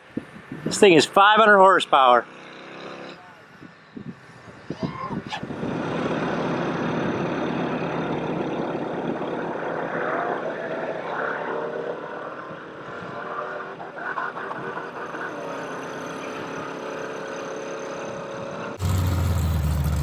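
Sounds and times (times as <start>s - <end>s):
off-road vehicle engine under load: 2.1s - 4.2s, 5.5s - 9.8s, 13.4s - 20.0s.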